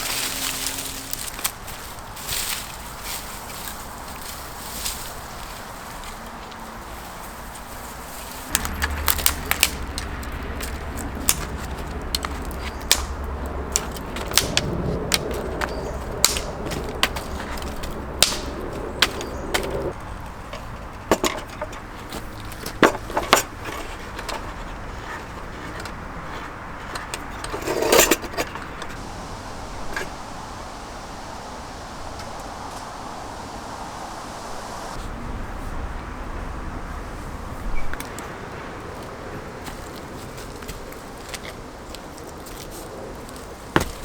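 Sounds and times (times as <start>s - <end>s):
objects clattering: 8.2s - 29.0s
low steady rumble: 8.4s - 25.6s
hard objects clicking and knocking: 8.5s - 29.0s.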